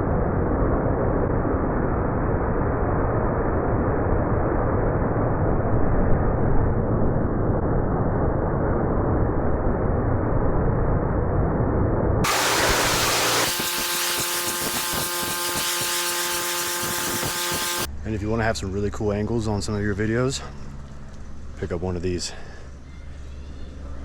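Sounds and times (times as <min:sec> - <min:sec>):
pressure washer spraying water: 0:12.2 - 0:17.9
whine of several tones: 0:12.2 - 0:17.9.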